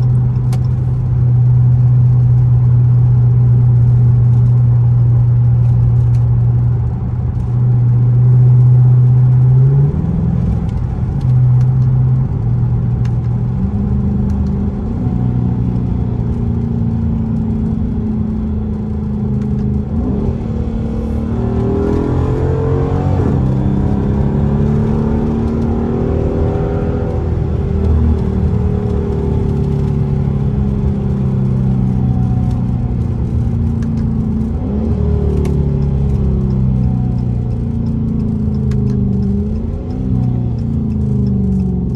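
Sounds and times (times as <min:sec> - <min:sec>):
car exhaust droning: 0:00.0 - 0:41.9.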